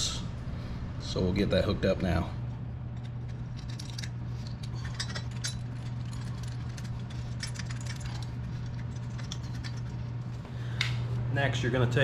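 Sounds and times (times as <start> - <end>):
steady low hum: 0.0 - 12.0
metallic clinking of hand tools: 3.6 - 8.2.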